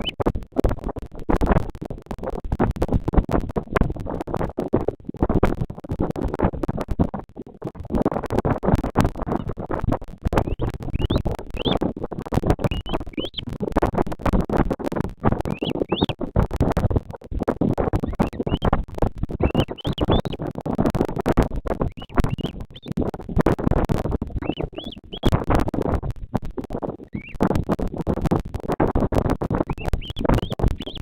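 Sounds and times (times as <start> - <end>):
high rising bird chirps: 10.5 - 11.8, 12.7 - 13.4, 15.5 - 16.1, 18.1 - 18.6, 19.4 - 20.4, 22.0 - 22.9, 24.4 - 25.3, 29.7 - 31.0.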